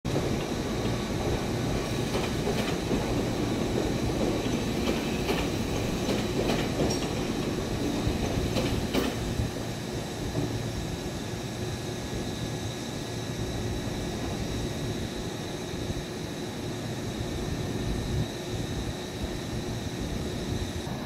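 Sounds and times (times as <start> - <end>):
train rumbling on track: 0.1 - 21.0
wheel clacks over rail joints: 2.1 - 9.3.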